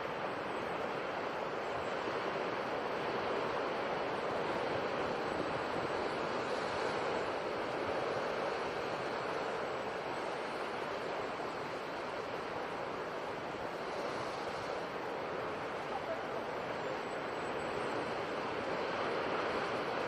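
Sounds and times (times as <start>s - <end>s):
ocean waves washing: 0.0s - 20.0s.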